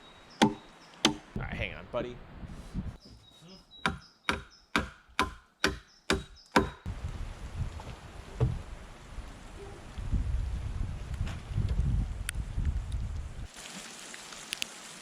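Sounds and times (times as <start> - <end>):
hand tool chopping wood: 0.4 - 1.2
outdoor wind noise: 1.3 - 3.1, 6.6 - 13.5.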